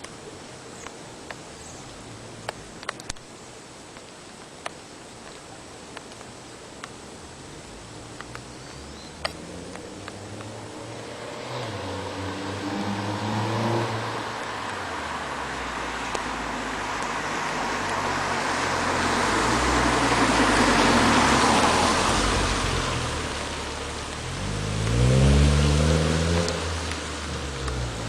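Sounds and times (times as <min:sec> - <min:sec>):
road noise: 0:00.0 - 0:28.0
car engine accelerating: 0:08.2 - 0:28.0.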